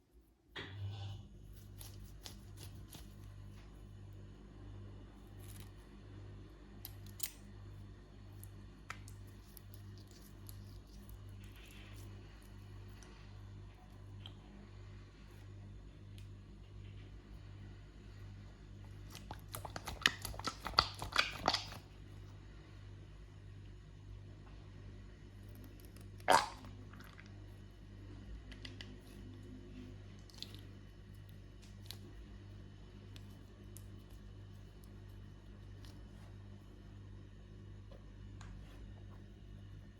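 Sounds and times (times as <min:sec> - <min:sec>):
gooey filling squishing: 0:01.5 - 0:03.6, 0:06.7 - 0:14.4, 0:18.7 - 0:22.3, 0:25.4 - 0:36.6
low pulsing hum: 0:21.8 - 0:39.9.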